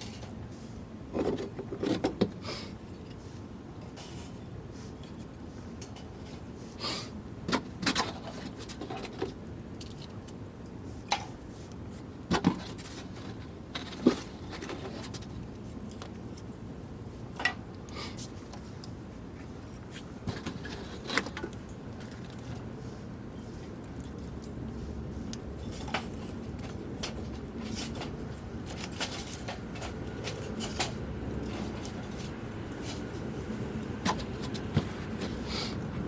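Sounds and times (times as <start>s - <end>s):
steady low hiss: 21.6s - 36.0s.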